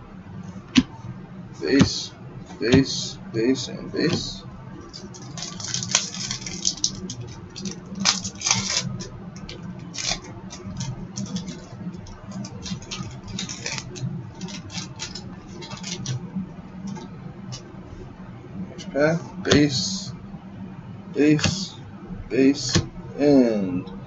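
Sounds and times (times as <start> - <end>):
steady low hum: 0.0 - 24.0
cards and wrapper crinkling: 4.8 - 16.2.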